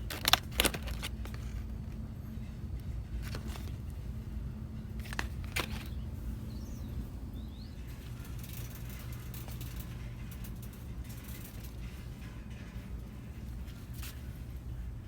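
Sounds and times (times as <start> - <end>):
store background hum: 0.0 - 15.0.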